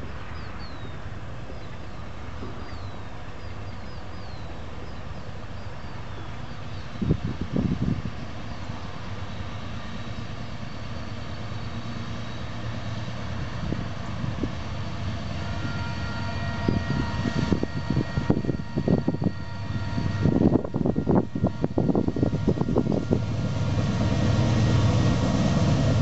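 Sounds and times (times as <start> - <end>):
distant locomotive drone: 0.0 - 26.0
wind buffeting microphone: 6.7 - 8.5, 13.2 - 26.0.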